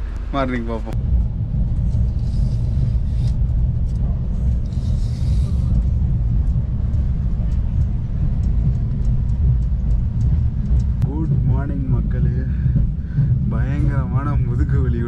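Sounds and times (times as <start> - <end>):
train rumbling inside carriage: 0.0 - 15.0.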